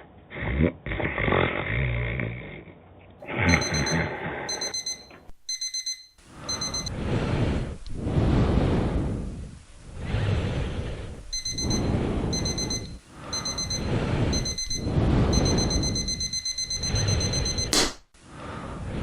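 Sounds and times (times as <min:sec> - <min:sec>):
person snoring: 0:00.3 - 0:04.7
alarm clock ringing: 0:03.5 - 0:06.9, 0:11.3 - 0:17.7.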